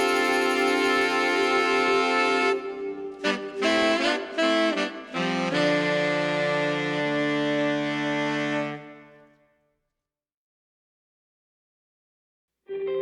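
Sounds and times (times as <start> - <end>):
instrumental background music: 0.0 - 8.9.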